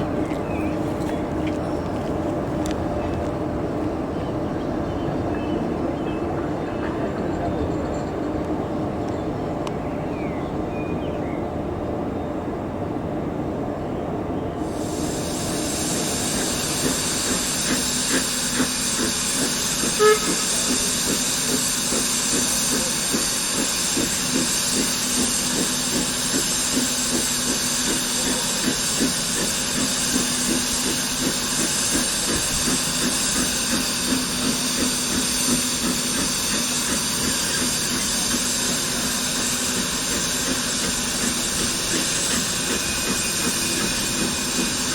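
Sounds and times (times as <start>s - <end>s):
locomotive exhaust chuffs: 14.6s - 44.9s
steam hissing: 14.6s - 44.9s.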